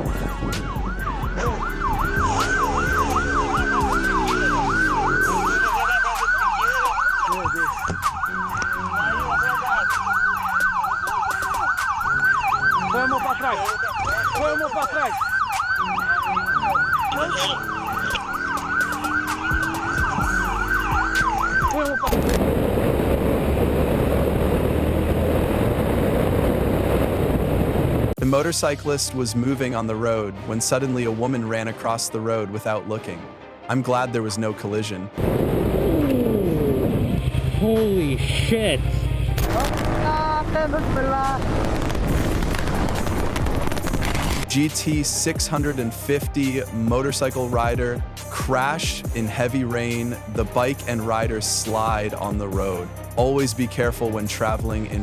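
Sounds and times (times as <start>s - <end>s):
police siren yelping: 0.0s - 23.2s
steady rushing noise: 22.2s - 28.2s, 35.2s - 44.5s
low engine or voice sounds: 35.9s - 41.3s.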